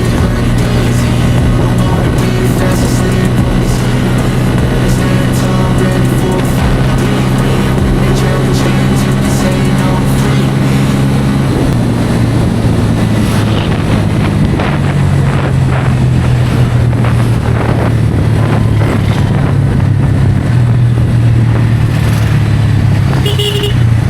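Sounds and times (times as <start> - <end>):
motorcycle engine cruising: 0.0 - 24.0
wind on microphone: 0.0 - 24.0
vehicle horn: 23.2 - 24.0.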